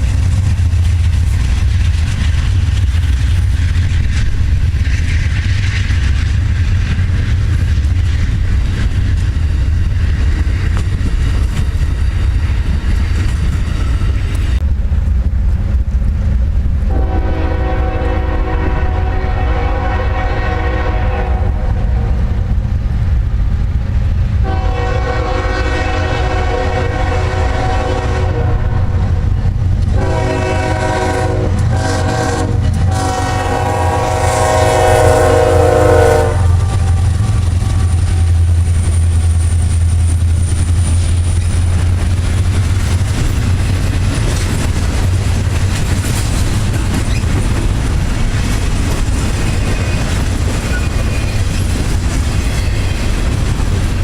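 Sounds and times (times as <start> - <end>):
train rumbling on rails: 0.0 - 54.0
locomotive air horn blasts: 16.9 - 22.1, 24.4 - 29.2, 29.9 - 38.3.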